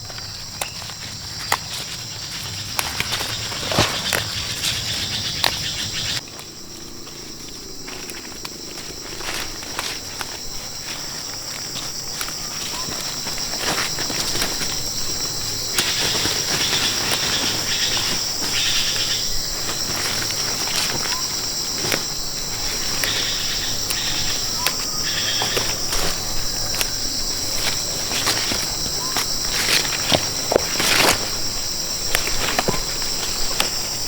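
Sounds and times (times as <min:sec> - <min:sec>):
high-pitched insect chorus: 0:00.0 - 0:34.0
plants rustling when handled: 0:00.0 - 0:34.0.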